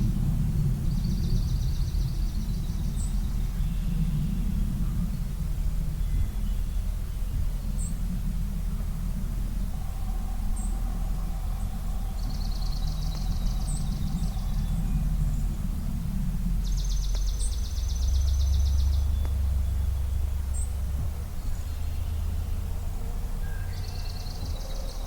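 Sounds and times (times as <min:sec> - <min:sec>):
steady low rumble: 0:00.0 - 0:25.0
songbird trilling: 0:09.6 - 0:22.7, 0:23.4 - 0:25.0.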